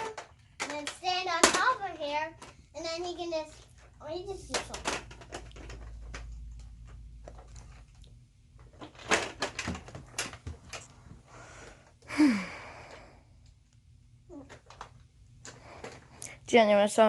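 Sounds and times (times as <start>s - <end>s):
plastic toys clicking and knocking: 0.0s - 10.9s, 14.3s - 16.2s.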